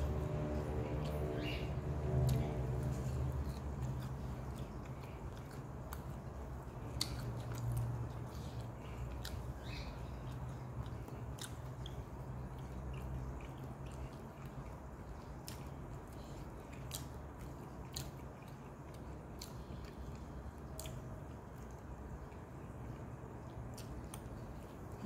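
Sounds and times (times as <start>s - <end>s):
low hum: 0.0s - 16.7s
person chewing: 0.0s - 25.0s.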